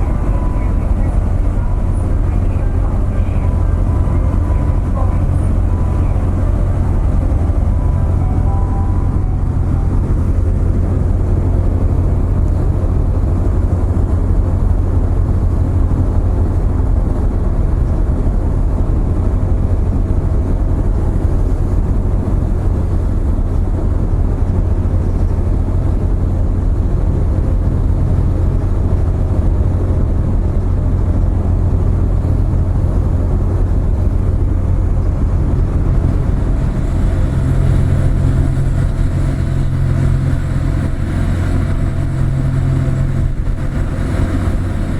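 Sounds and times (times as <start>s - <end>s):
ferry diesel engines droning: 0.0s - 44.9s.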